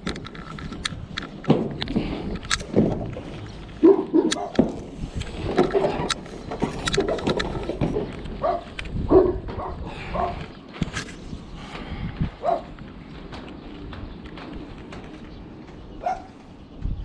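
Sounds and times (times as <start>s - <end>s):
sharp clicks and knocks: 0.0s - 9.7s, 12.7s - 17.0s
dog barking: 3.8s - 4.6s, 8.4s - 10.4s, 12.4s - 12.7s, 16.0s - 16.3s.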